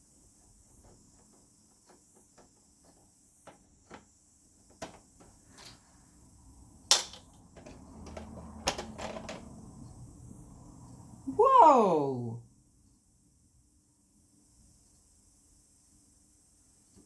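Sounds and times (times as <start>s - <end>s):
plastic parts clicking and tapping: 0.5s - 5.8s, 6.9s - 9.6s.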